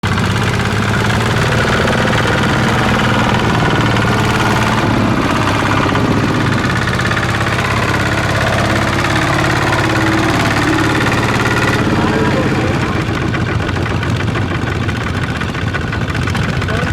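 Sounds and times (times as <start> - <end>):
farm machine engine running: 0.0 - 16.9.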